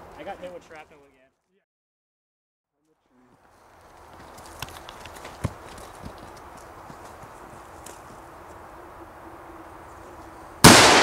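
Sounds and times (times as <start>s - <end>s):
loud explosive blast: 10.6s - 11.0s.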